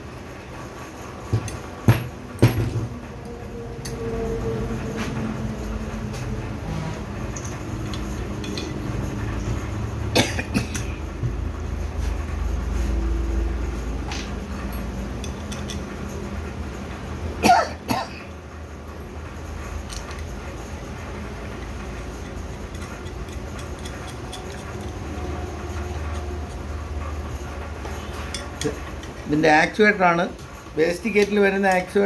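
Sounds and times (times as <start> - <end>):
steady low hum: 0.0 - 32.0
person coughing: 10.2 - 10.9, 17.4 - 18.3.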